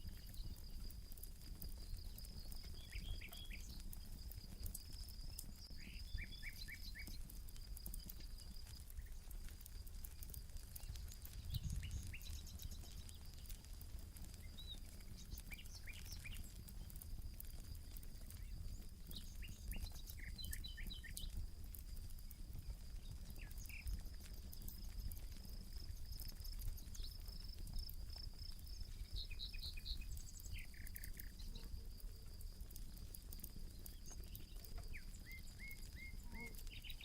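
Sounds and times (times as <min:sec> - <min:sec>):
campfire crackling: 0:00.0 - 0:37.0
birds chirping: 0:10.2 - 0:21.4, 0:23.0 - 0:31.8, 0:33.7 - 0:37.0.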